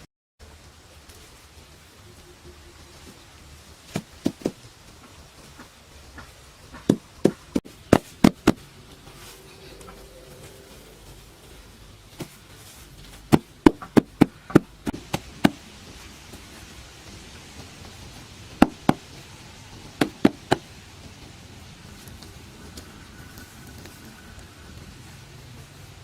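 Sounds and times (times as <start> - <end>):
sharp knocks by hand: 18.6 - 19.1.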